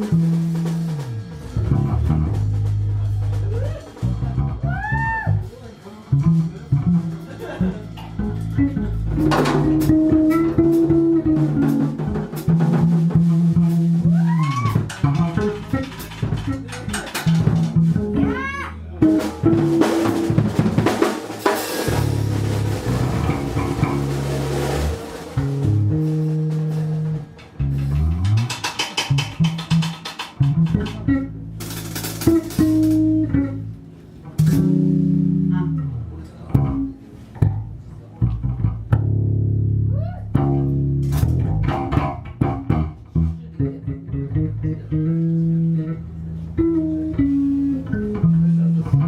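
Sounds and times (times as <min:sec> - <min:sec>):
bass guitar: 0:00.0 - 0:49.0
guitar: 0:00.0 - 0:49.0
drum hits: 0:06.2 - 0:35.4.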